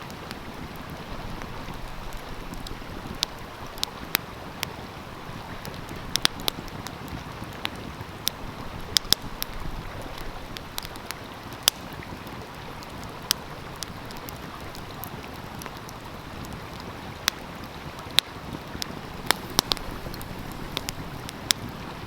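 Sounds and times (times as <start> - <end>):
stream rushing: 0.0 - 22.0
wood fire crackling: 0.0 - 22.0.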